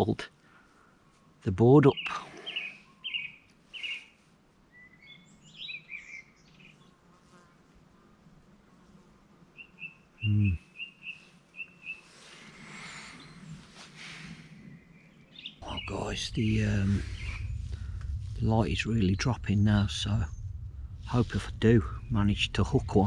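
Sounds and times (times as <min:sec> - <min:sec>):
songbirds singing: 0:01.2 - 0:07.0, 0:09.6 - 0:23.0
man's low vocal hum: 0:10.2 - 0:10.6.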